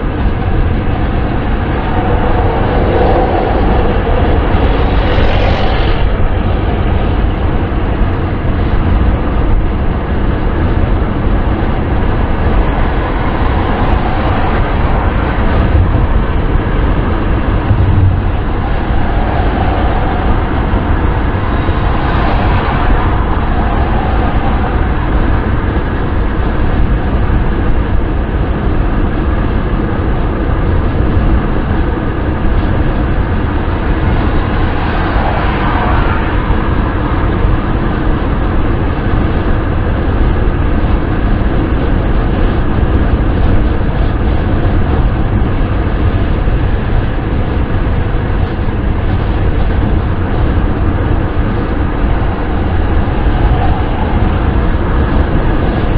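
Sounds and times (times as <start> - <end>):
car road and wind noise: 0.0 - 55.9.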